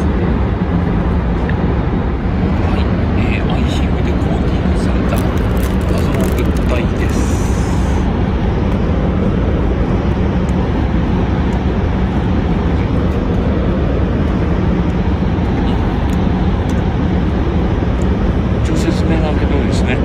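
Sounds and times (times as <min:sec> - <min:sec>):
train cabin rumble: 0:02.4 - 0:08.1
plastic wrapper crinkling: 0:05.1 - 0:07.2.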